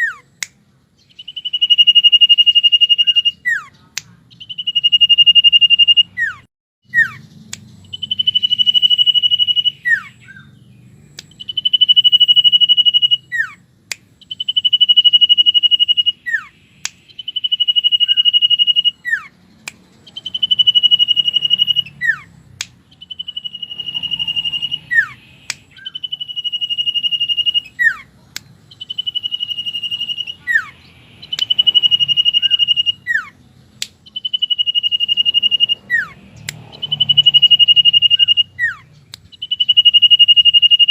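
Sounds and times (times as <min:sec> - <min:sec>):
bird whistling song: 0:00.0 - 0:40.9
sharp clicks: 0:07.3 - 0:09.5, 0:11.1 - 0:12.5, 0:16.8 - 0:18.8, 0:19.4 - 0:27.4, 0:28.3 - 0:30.3, 0:31.2 - 0:32.9, 0:33.6 - 0:38.3, 0:38.9 - 0:40.9.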